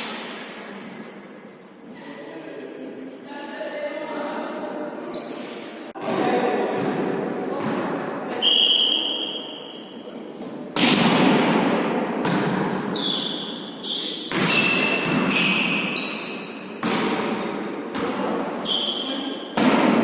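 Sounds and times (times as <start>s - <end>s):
shoe squeaks: 5.0s - 5.8s, 8.3s - 10.7s, 12.6s - 16.8s, 18.6s - 19.6s
volleyball smacks echoing: 10.7s - 12.9s, 14.2s - 15.9s, 16.7s - 18.6s, 19.6s - 20.0s.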